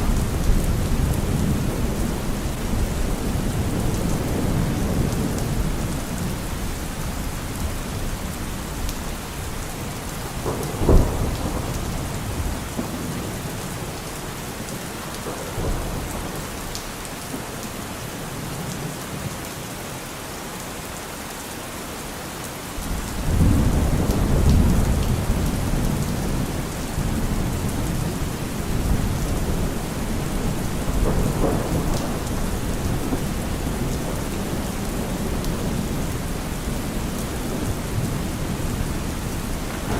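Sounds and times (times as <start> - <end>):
low thunder rumble: 0.0 - 13.9, 22.8 - 39.9
steady rain: 0.0 - 39.9
thunder crack: 10.3 - 13.2, 23.3 - 39.9.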